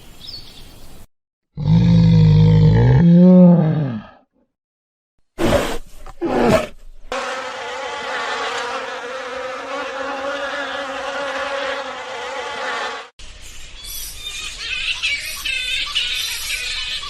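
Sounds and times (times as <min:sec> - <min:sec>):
bee buzzing: 0:07.1 - 0:13.1.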